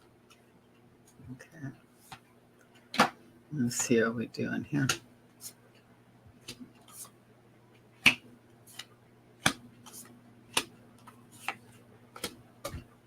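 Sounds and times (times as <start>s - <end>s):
cards snapping and tapping: 8.0s - 11.6s, 12.2s - 12.8s.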